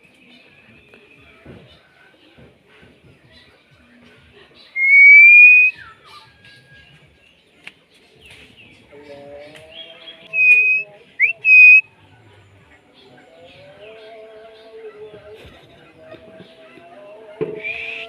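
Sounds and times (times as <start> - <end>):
bird chattering: 4.8 - 5.7, 10.3 - 11.8
myna whistling: 4.8 - 6.2, 10.3 - 11.8, 17.6 - 18.0.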